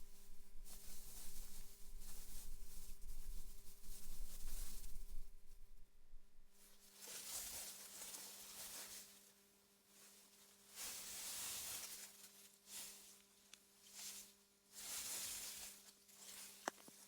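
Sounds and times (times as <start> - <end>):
wind through grass: 0.0 - 6.7
faint steady low hum: 0.0 - 10.9.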